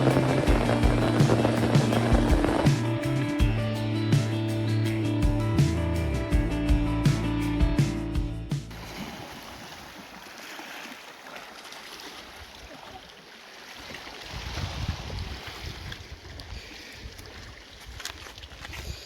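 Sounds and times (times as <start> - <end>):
sea water lapping: 0.0 - 3.1, 8.7 - 19.0
wind rumbling on microphone: 0.0 - 4.4, 14.2 - 19.0.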